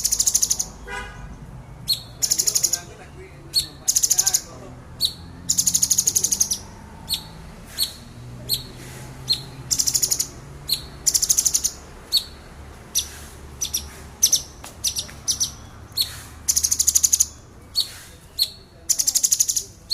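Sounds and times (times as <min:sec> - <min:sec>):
bird rapid-fire note bursts: 0:01.8 - 0:02.9.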